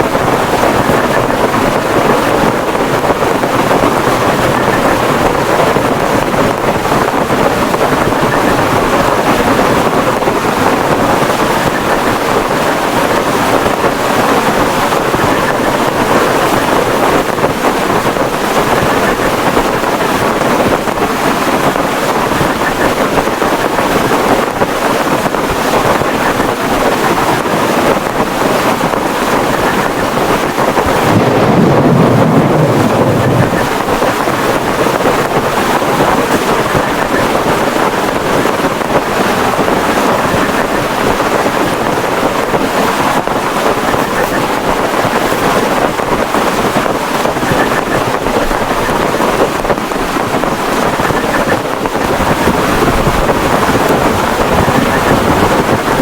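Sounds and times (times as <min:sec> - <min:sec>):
heavy rain on a tarpaulin: 0:00.0 - 0:56.0
wind buffeting: 0:00.0 - 0:56.0
low rumble: 0:30.9 - 0:34.9.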